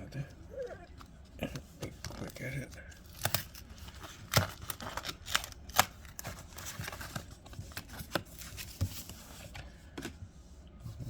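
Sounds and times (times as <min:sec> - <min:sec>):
card packaging clicks and taps: 0:04.3 - 0:09.0.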